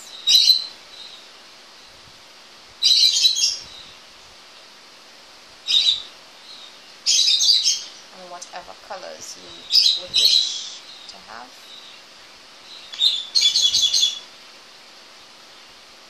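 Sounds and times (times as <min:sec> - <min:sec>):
bird chirping: 0:00.0 - 0:01.9, 0:02.8 - 0:04.0, 0:05.6 - 0:14.3.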